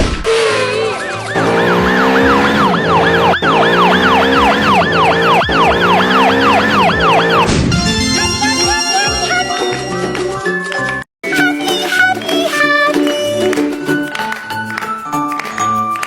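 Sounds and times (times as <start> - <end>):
warbling siren-like tone: 1.3 - 7.6
background music with held notes: 7.5 - 16.0.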